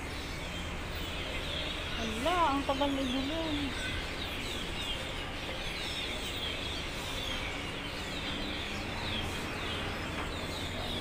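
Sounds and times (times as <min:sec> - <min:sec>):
background hubbub: 0:00.0 - 0:11.0
small birds chirping: 0:00.0 - 0:11.0.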